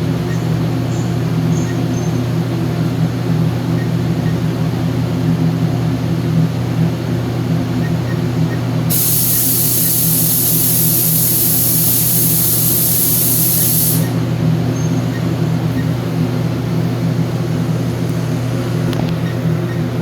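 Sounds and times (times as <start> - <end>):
loud hiss of escaping air: 8.9 - 14.2.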